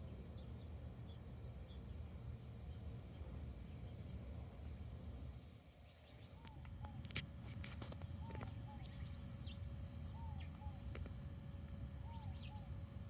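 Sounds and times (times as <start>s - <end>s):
hummingbird squeaking chatter: 6.8s - 11.0s.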